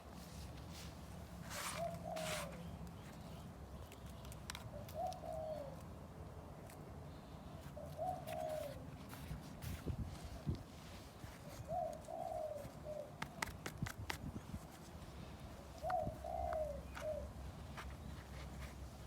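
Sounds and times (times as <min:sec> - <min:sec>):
dove cooing: 0:01.6 - 0:02.7, 0:04.7 - 0:05.8, 0:07.5 - 0:09.2, 0:11.3 - 0:13.3, 0:15.6 - 0:17.4.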